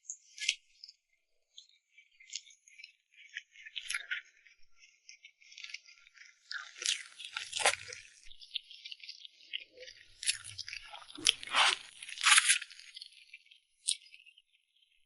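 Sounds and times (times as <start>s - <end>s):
wet chewing: 6.6s - 8.0s, 10.2s - 12.9s
food crunching bite: 10.2s - 12.9s.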